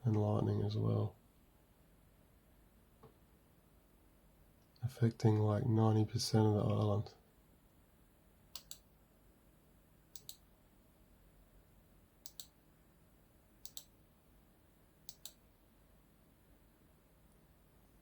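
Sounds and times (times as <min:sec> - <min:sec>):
computer mouse clicking: 0:08.5 - 0:08.9, 0:10.1 - 0:10.4, 0:12.2 - 0:12.6, 0:13.6 - 0:13.9, 0:15.0 - 0:15.4.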